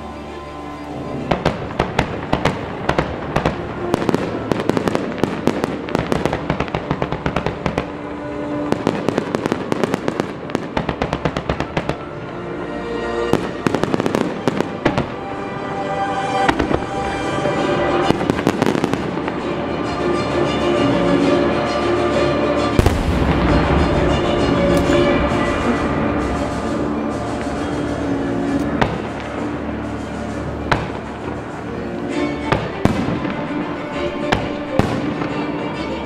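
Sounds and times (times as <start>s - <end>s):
music playing: 0.0s - 36.0s
firework shells bursting and crackling: 1.1s - 12.4s, 22.7s - 36.0s.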